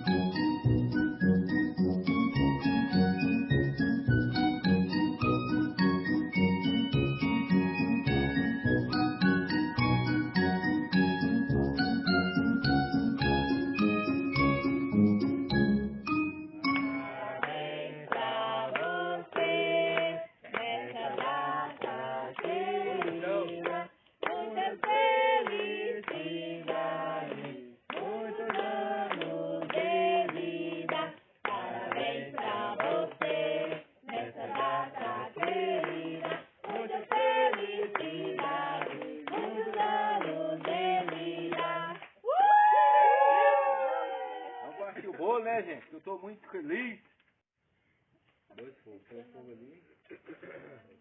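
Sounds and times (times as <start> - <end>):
people singing together: 16.8 - 42.1.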